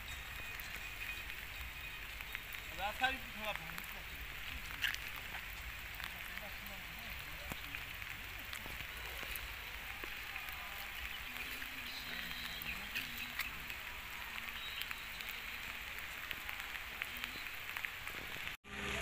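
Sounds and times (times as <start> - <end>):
raindrops ticking: 0.0 - 18.6
steady rain hiss: 0.0 - 19.0.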